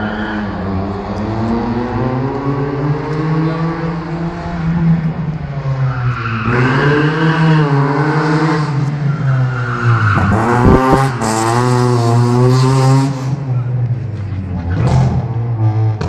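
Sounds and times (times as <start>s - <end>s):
car engine at high revs: 0.0s - 16.0s
tyres skidding: 0.0s - 16.0s.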